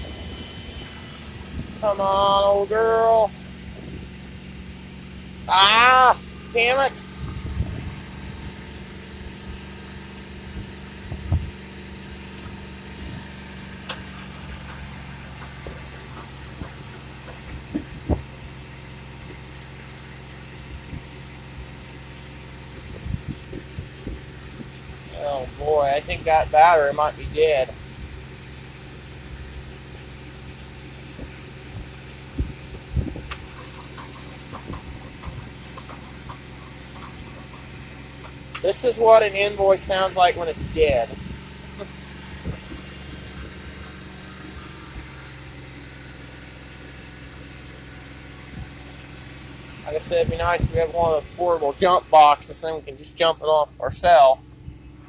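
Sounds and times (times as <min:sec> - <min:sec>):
faint high whine: 0:00.0 - 0:55.0
truck engine idling: 0:00.0 - 0:55.0.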